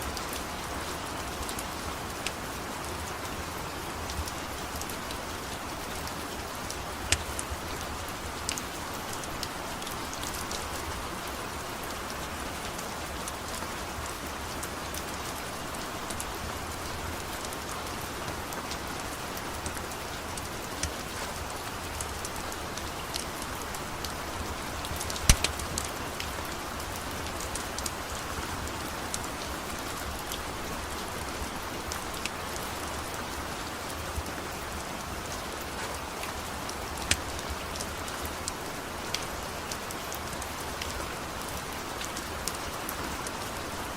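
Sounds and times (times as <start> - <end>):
steady rain: 0.0 - 43.9
wood fire crackling and popping: 7.1 - 7.4, 24.7 - 26.2.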